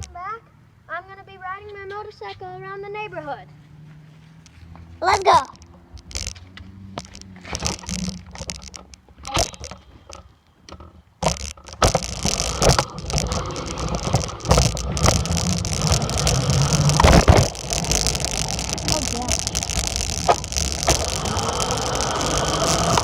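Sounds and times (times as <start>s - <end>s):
dirt bike engine running: 5.2s - 10.2s, 11.2s - 23.0s
knocks and rattles: 5.2s - 23.0s
rushing noise: 11.2s - 23.0s.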